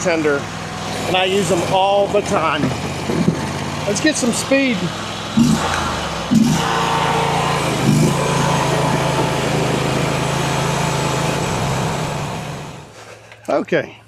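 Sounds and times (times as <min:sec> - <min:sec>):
skid steer engine revving: 0:00.0 - 0:13.1.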